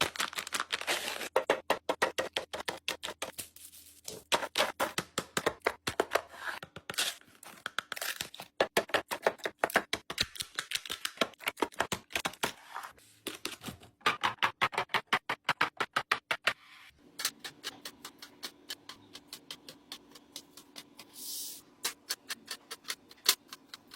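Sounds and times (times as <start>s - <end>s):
plastic packaging clicking and crinkling: 0.0s - 1.4s.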